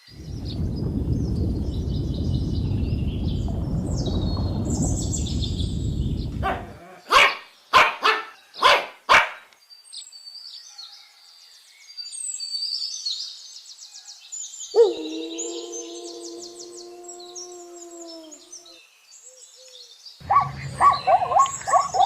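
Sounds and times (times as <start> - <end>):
low rumbling noise: 0.0 - 6.9, 14.9 - 18.7, 20.2 - 22.0
birds twittering: 0.0 - 11.6, 12.7 - 22.0
dog barking: 6.4 - 9.4, 20.2 - 22.0.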